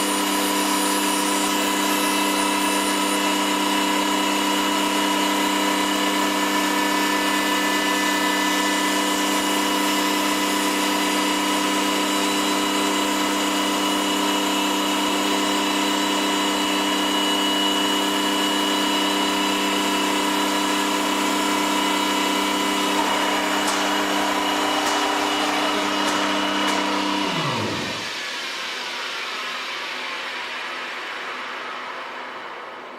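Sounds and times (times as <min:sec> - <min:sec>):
cutter cutting wood: 0:21.1 - 0:28.3
spindle high whine: 0:22.9 - 0:28.7.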